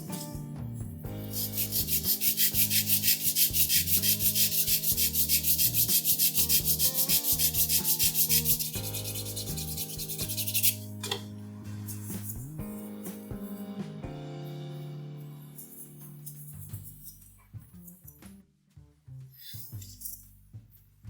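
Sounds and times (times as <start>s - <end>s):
background music: 0.0s - 17.9s
sandpaper rubbing on plastic: 1.2s - 10.9s.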